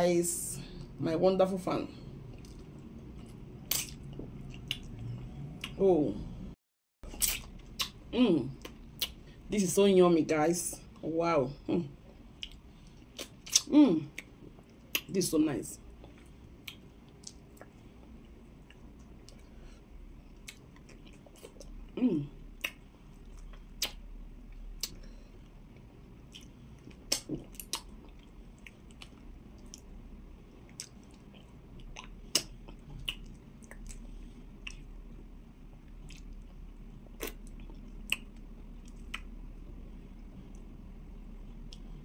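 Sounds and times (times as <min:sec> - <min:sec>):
chewing and lip smacking: 0:02.3 - 0:05.8, 0:07.0 - 0:08.0, 0:08.6 - 0:09.4, 0:12.0 - 0:15.2, 0:16.0 - 0:19.6, 0:20.2 - 0:30.0, 0:30.6 - 0:39.4.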